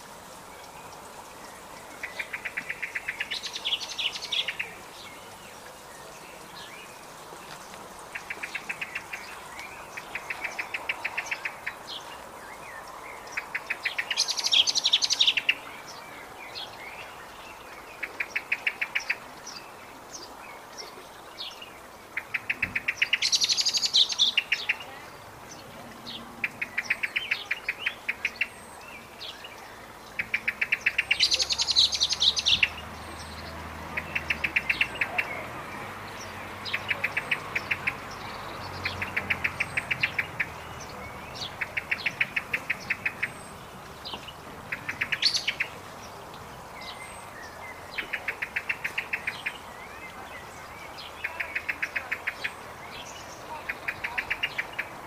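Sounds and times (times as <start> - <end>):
rapid bird ticking: 1.8 - 4.8, 30.1 - 35.4, 36.1 - 45.8.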